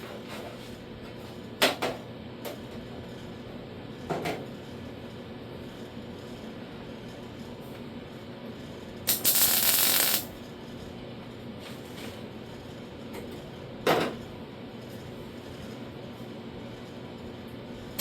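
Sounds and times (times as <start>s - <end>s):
welding arc crackling: 9.1s - 10.3s.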